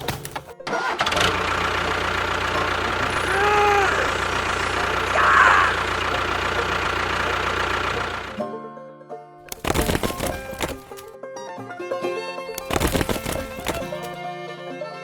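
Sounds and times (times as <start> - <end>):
engine idling: 0.0 - 8.5, 9.5 - 11.1, 12.5 - 14.2.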